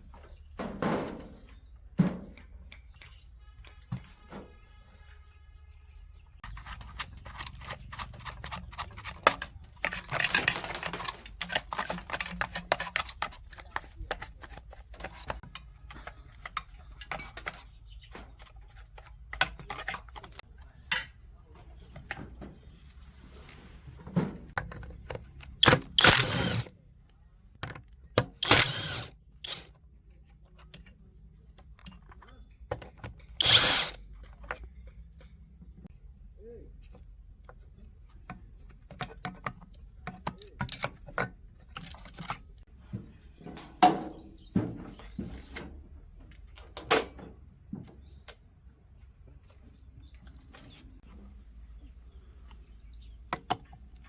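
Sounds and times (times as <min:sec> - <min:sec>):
power tool bursts: 0:25.6 - 0:26.7, 0:28.4 - 0:29.7, 0:33.4 - 0:34.0.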